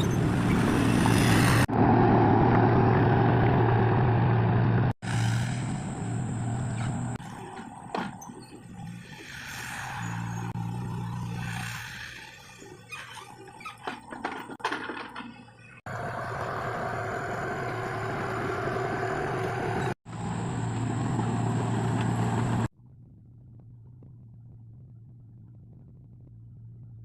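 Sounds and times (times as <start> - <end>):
knocks and clatter: 13.3 - 15.6
distant engine hum: 15.2 - 22.7
machinery engine running: 15.9 - 22.7.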